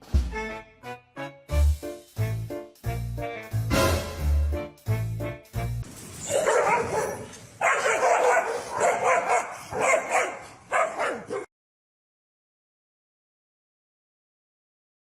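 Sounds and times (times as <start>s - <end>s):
upbeat music: 0.0s - 5.8s
dog barking: 6.3s - 11.5s.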